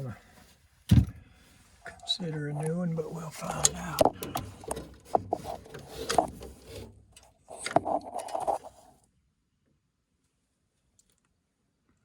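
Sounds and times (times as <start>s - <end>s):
tools scraping: 2.3s - 8.9s
tools clicking and knocking: 3.5s - 8.7s.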